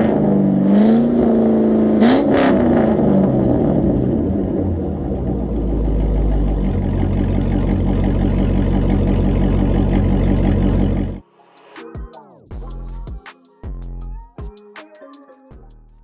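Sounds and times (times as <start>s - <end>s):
pickup engine revving and idling: 0.0s - 11.2s.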